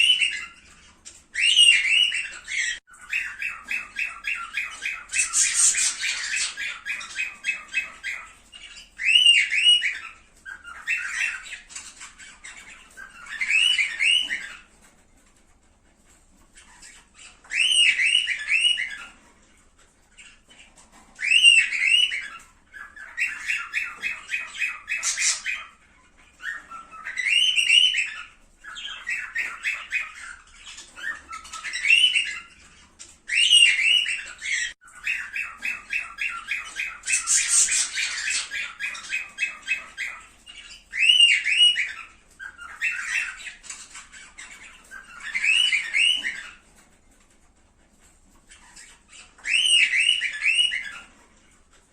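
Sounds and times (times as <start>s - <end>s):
rapid chattering calls: 0.0s - 14.7s, 20.1s - 46.6s
cockatiels chirping: 0.0s - 51.9s.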